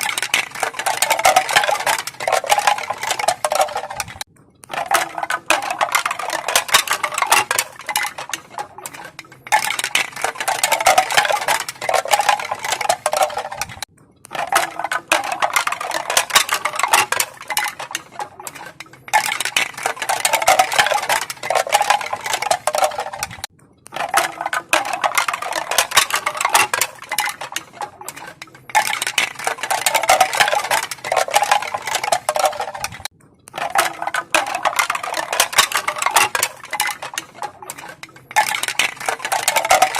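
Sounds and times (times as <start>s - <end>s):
bamboo pieces clacking: 0.0s - 39.9s.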